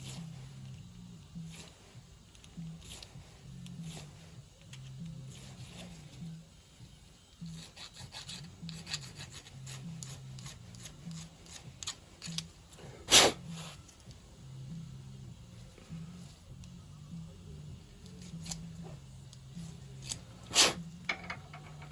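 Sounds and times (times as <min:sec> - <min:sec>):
low steady hum: 0:00.0 - 0:21.9
rubbing and scraping metal parts: 0:07.4 - 0:12.6, 0:19.9 - 0:21.9.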